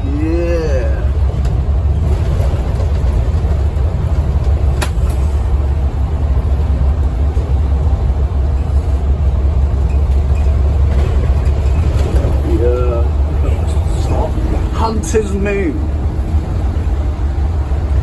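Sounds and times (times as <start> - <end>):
bus diesel engine drone: 0.0 - 18.0
road noise: 0.0 - 18.0.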